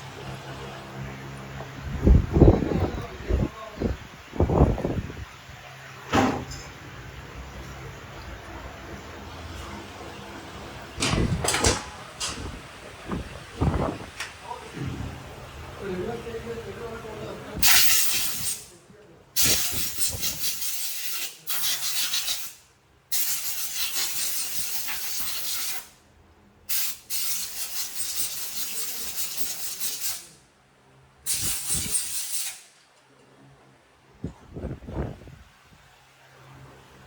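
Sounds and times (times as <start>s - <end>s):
high-pressure jet hissing: 17.6s - 18.7s, 19.4s - 25.9s, 26.7s - 30.3s, 31.3s - 32.7s.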